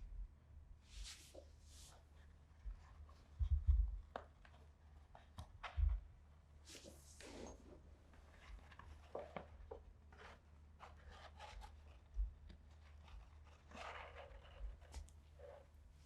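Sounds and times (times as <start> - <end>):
dull low thumps: 3.4 - 4.0.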